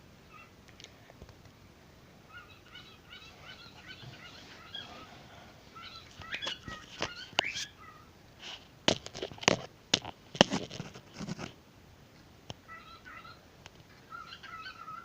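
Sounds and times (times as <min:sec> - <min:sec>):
pet bird chirping softly: 0:00.3 - 0:00.6, 0:02.3 - 0:05.2, 0:05.8 - 0:08.1, 0:12.7 - 0:13.4, 0:14.0 - 0:15.0.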